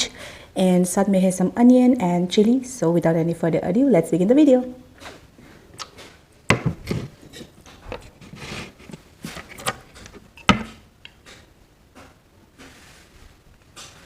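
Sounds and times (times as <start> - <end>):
soft rubbing: 7.0 - 9.6, 12.6 - 14.0
tableware clicking and knocking: 9.4 - 12.2.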